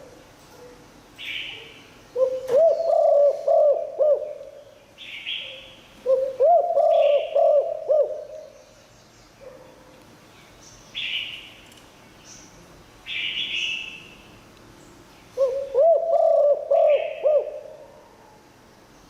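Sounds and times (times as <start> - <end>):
dove cooing: 2.2 - 4.6, 6.0 - 8.5, 15.4 - 18.4.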